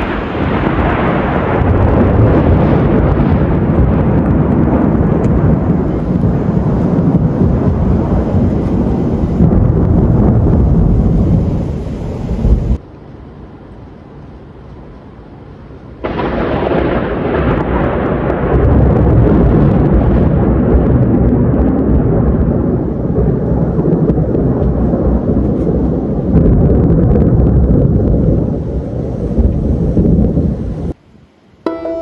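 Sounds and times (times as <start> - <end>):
thunder rumbling: 0.0 - 31.0
quiet hiss: 30.5 - 32.0.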